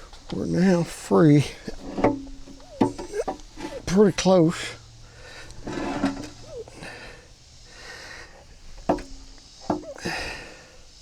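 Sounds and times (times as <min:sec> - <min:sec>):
sharp metal knocks: 0:08.8 - 0:10.0.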